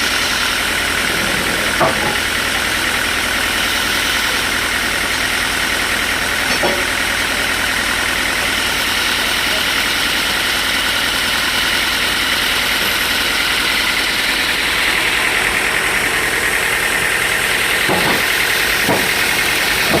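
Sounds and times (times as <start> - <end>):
sawmill machinery running: 0.0 - 20.0
short knocks: 17.8 - 20.0.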